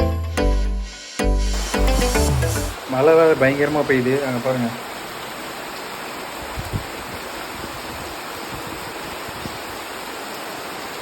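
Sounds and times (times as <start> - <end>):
heavy rain pouring: 1.4 - 11.0.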